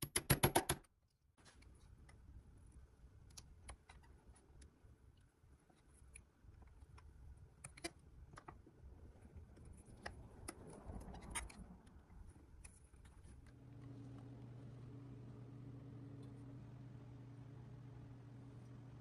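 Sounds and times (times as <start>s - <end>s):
steady low hum: 8.9s - 19.0s.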